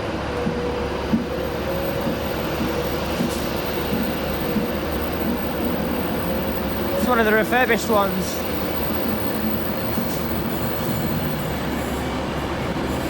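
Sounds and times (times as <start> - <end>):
electric train whine: 0.0 - 13.0
train rumble: 0.0 - 13.0.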